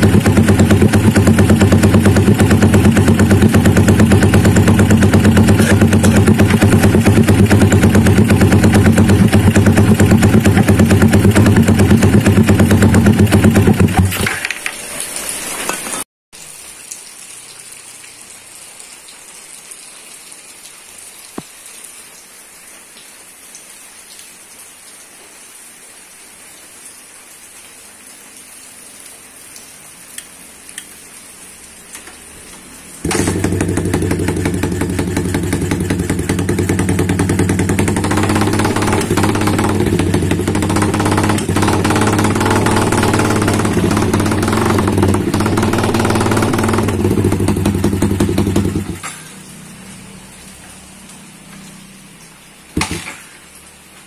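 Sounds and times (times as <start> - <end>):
motorcycle engine running loud: 0.0 - 14.2, 33.0 - 49.2.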